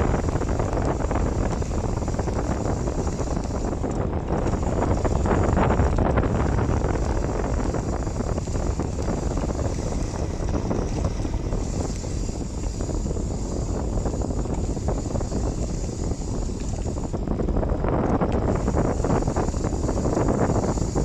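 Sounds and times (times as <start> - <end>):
bicycle tyres on wet road: 0.0 - 21.0
wind buffeting microphone: 0.0 - 21.0.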